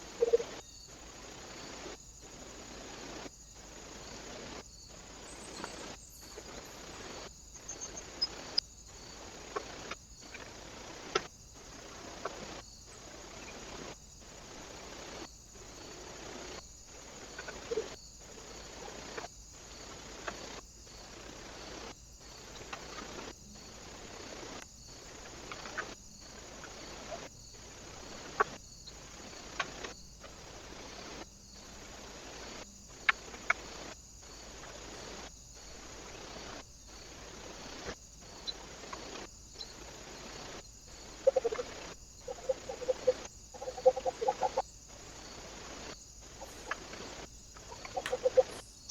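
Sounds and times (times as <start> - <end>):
bird clucking calls: 0.1 - 0.5, 41.1 - 44.6, 46.3 - 48.6.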